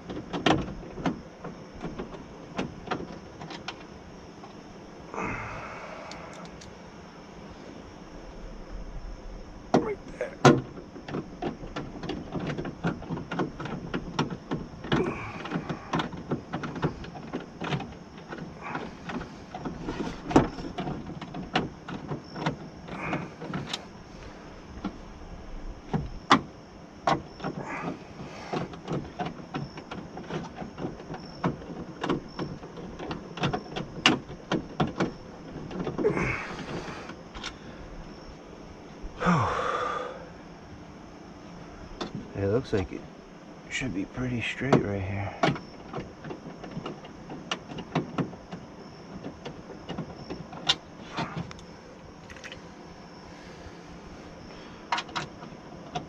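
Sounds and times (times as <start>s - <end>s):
metal clicks and knocks: 54.9s - 56.0s.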